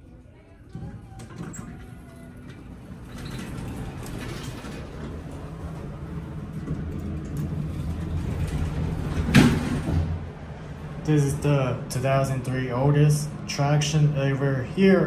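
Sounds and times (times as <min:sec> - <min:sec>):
elevator running rumble: 0:00.0 - 0:15.0
elevator doors slamming: 0:00.9 - 0:10.5.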